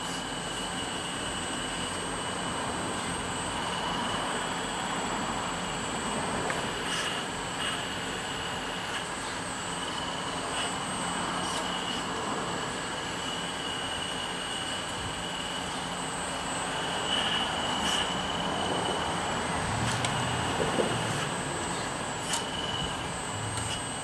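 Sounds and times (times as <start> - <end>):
toy excavator motor whining: 9.7 - 24.0.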